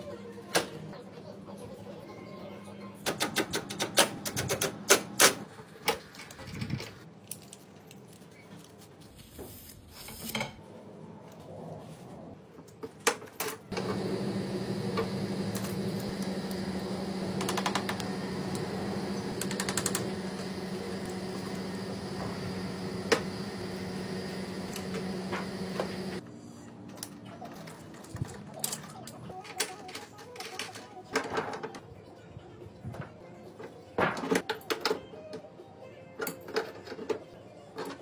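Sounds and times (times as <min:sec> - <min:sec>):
air conditioner humming: 0:13.7 - 0:26.2.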